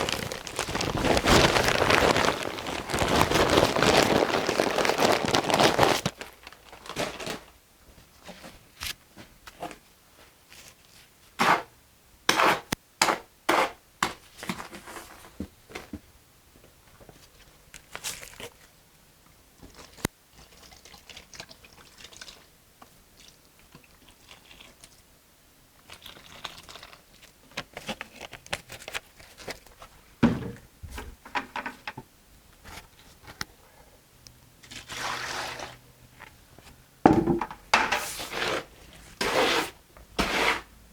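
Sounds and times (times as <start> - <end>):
hoe scraping wet mortar: 11.4 - 11.7, 12.3 - 15.0, 34.7 - 35.8, 37.8 - 40.7.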